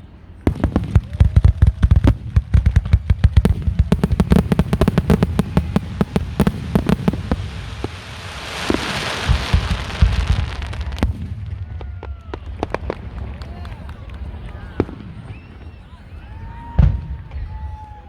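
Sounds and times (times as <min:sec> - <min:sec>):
fireworks bangs and booms: 0:00.1 - 0:18.0
fireworks hiss: 0:03.4 - 0:11.2.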